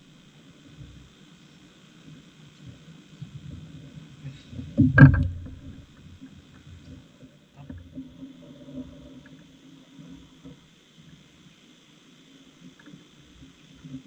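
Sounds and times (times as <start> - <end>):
small knocks: 4.7 - 6.1
heavy thump: 4.8 - 5.8
low rumble: 4.8 - 6.0.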